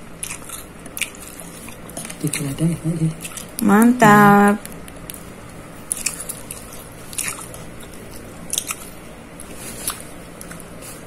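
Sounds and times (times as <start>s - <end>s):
biting and chewing sausage: 0.0s - 4.0s, 4.6s - 11.0s.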